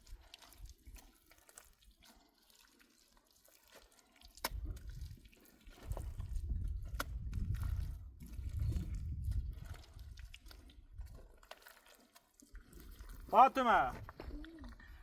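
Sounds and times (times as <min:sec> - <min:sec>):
water dripping and splashing: 0:00.0 - 0:15.0.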